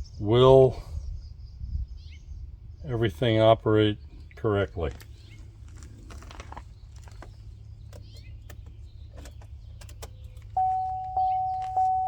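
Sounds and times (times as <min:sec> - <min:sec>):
car warning chime beeping: 0:10.5 - 0:12.0.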